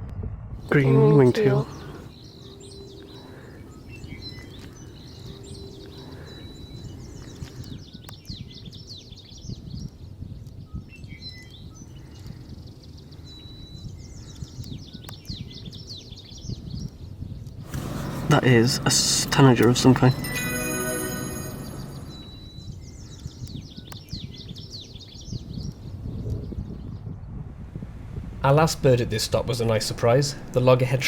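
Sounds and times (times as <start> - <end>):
outdoor background noise: 0.0 - 31.0
birds chirping and twittering: 0.6 - 27.4, 28.5 - 31.0
whistled bird notes: 0.8 - 9.3, 17.7 - 25.2.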